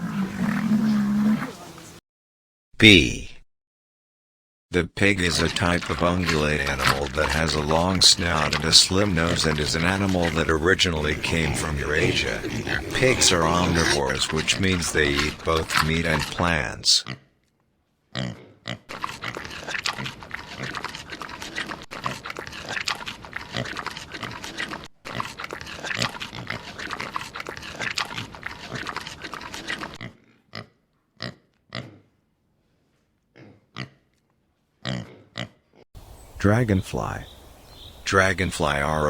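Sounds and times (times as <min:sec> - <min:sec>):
pig grunting: 0:00.0 - 0:01.9, 0:05.0 - 0:17.2, 0:18.2 - 0:32.1, 0:34.8 - 0:35.6.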